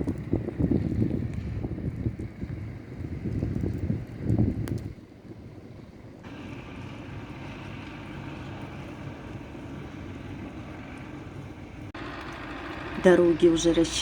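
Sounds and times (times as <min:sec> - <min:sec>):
wind: 0:00.0 - 0:14.0
tractor engine droning: 0:06.0 - 0:14.0.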